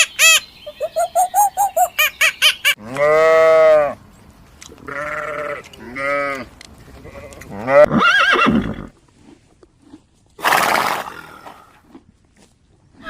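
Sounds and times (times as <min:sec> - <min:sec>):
animal calls: 0:00.0 - 0:03.3.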